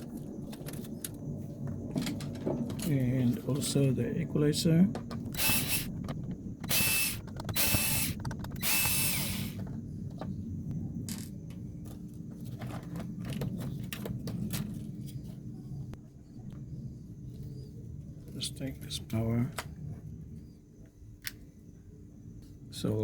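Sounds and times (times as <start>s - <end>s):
parts clicking and clattering: 4.9s - 10.3s
power screwdriver whirring: 5.3s - 9.6s.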